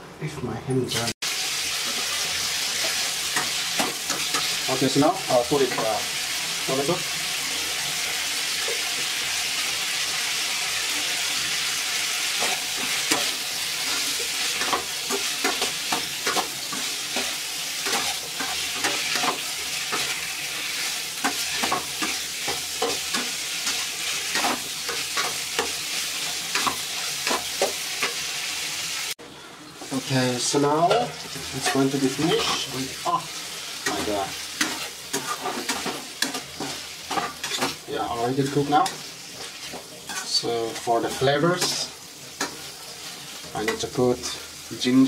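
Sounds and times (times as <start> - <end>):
food sizzling in a frying pan: 0.9 - 45.0
spatula scraping a pan: 10.8 - 28.3, 33.4 - 44.4.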